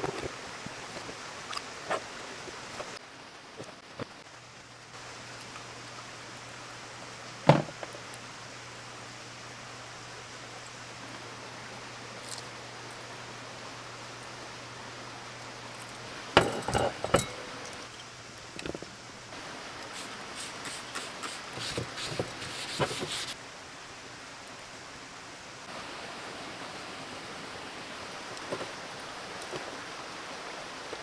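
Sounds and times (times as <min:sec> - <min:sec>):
steady hiss: 0:00.0 - 0:31.0
sharp knocks and clinks: 0:16.4 - 0:18.0.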